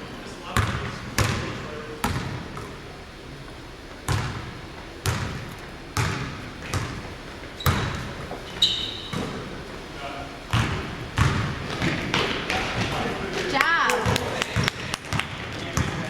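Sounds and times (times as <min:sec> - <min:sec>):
basketball bouncing on gym floor: 0:00.5 - 0:02.8, 0:04.0 - 0:09.6, 0:10.5 - 0:16.0
short high squeak: 0:08.5 - 0:09.2.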